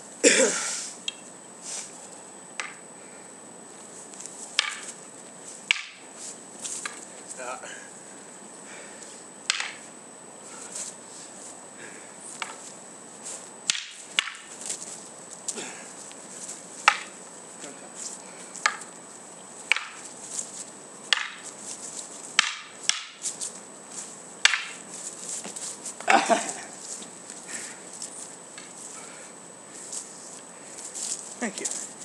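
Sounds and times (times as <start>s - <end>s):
wooden swords clacking: 2.6s - 2.8s, 4.5s - 5.0s, 5.6s - 7.1s, 9.4s - 9.9s, 12.3s - 12.6s, 13.6s - 15.7s, 16.8s - 19.0s, 19.6s - 23.6s, 24.4s - 26.1s.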